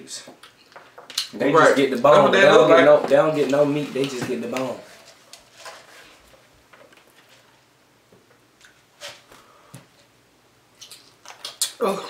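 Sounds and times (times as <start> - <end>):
chewing and mouth smacks: 10.8 - 11.8.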